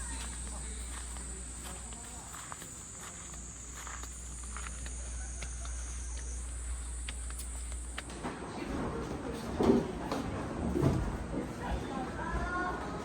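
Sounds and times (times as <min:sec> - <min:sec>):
cicadas droning: 0:00.0 - 0:09.0
light footsteps: 0:00.0 - 0:10.4.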